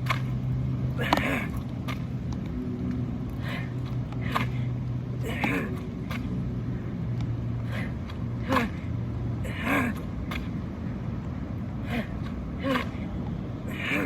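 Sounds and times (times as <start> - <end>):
steady low hum: 0.0 - 14.0
man exhaling and grunting: 1.0 - 1.6, 3.4 - 5.8, 7.6 - 8.8, 9.4 - 10.0, 11.8 - 13.1, 13.7 - 14.0.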